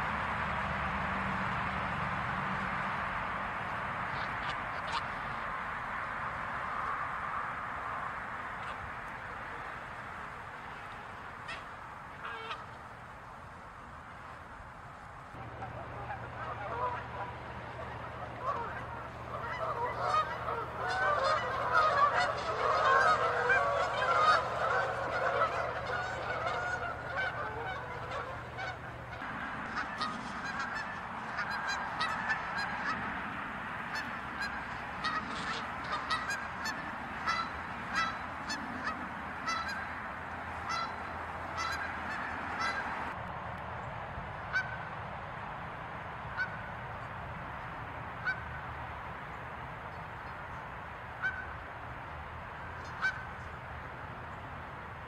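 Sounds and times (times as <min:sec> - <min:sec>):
geese honking: 0:01.1 - 0:05.5, 0:08.5 - 0:13.0, 0:15.3 - 0:43.2, 0:44.5 - 0:44.9, 0:46.3 - 0:47.0, 0:48.2 - 0:48.6, 0:51.1 - 0:51.6, 0:52.6 - 0:53.6.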